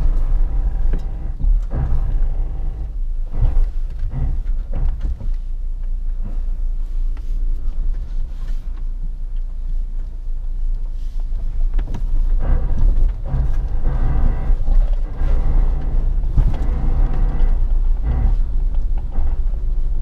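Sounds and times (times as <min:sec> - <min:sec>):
knocks and thuds: 0:00.0 - 0:05.4, 0:11.7 - 0:20.0
car engine droning at low revs: 0:00.0 - 0:20.0.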